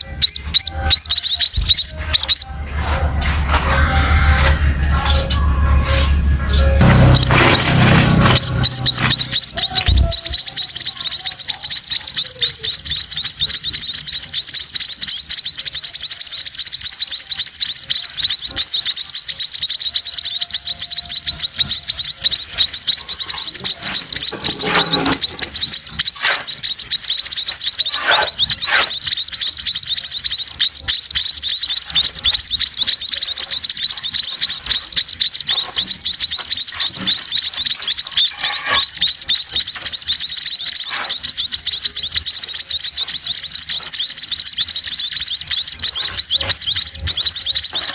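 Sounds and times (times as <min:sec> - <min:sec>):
nestling birds cheeping: 0:00.0 - 0:47.9
knocks or rustles: 0:06.8 - 0:10.3.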